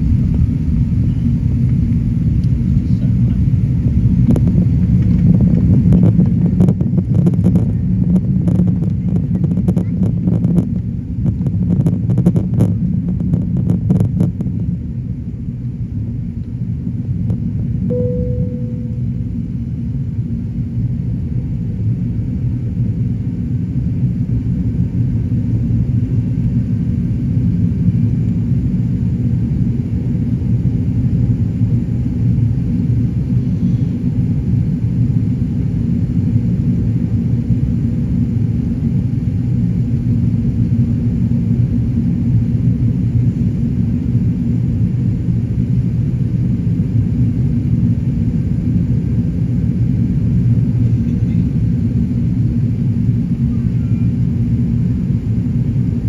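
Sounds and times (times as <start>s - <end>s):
jet engine low rumble: 0.0s - 56.0s
faint steady tones: 17.9s - 19.3s.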